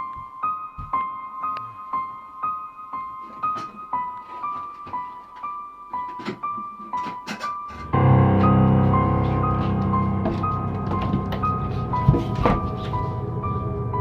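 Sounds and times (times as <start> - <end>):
piano repeating high notes: 7.5 - 14.0
low sustained chord: 7.7 - 14.0.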